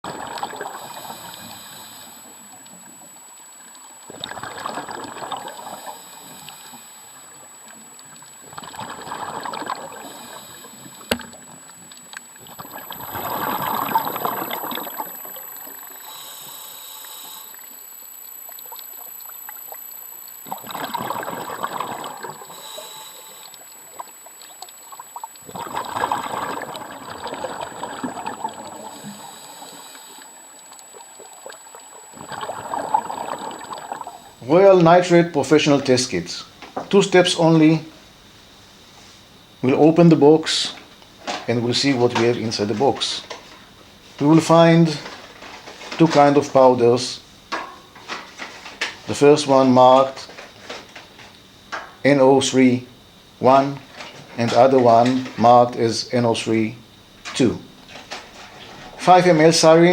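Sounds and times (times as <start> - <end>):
steady hiss: 0.4 - 4.2, 5.2 - 8.5, 9.3 - 59.9
water surging: 20.4 - 38.6.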